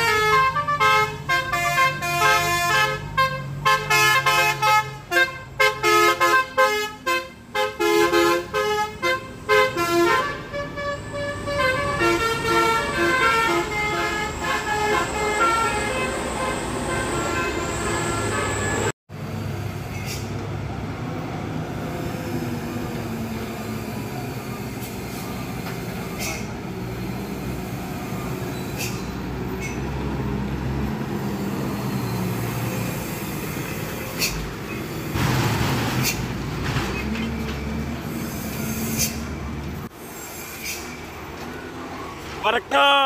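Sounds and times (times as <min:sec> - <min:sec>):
bus engine drone: 0:00.0 - 0:43.0
road noise: 0:00.0 - 0:43.0.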